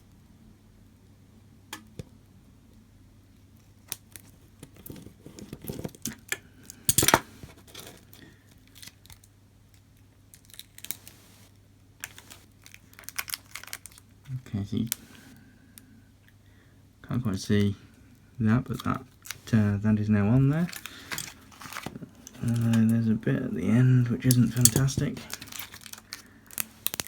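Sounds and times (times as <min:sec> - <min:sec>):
rustling and scraping: 0:04.2 - 0:06.3, 0:06.9 - 0:08.9, 0:10.8 - 0:13.9, 0:14.8 - 0:15.4, 0:18.7 - 0:23.0, 0:24.3 - 0:27.0.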